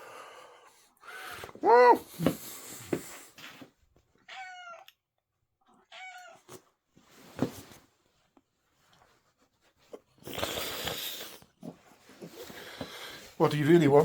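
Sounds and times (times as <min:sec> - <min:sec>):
cat meowing: 0:04.2 - 0:05.0, 0:05.8 - 0:06.6.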